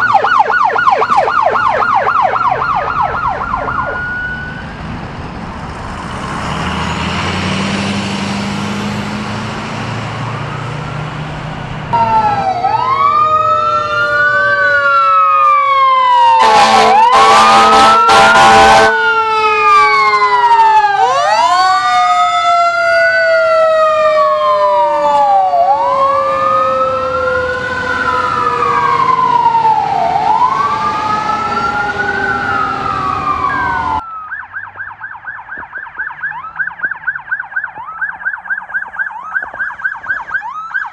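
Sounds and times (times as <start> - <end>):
fast yelping siren: 0.0 - 4.6, 11.9 - 40.9
siren tone gliding downward: 0.0 - 5.0, 8.6 - 40.9
vehicle engine rumble: 0.0 - 15.6, 19.0 - 40.7
emergency sirens wailing: 0.0 - 40.9
loud horn blasts: 16.3 - 19.4.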